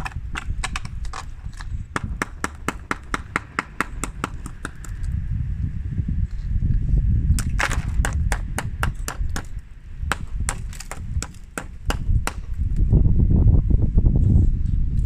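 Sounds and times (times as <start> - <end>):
low rumble: 0.3 - 11.2.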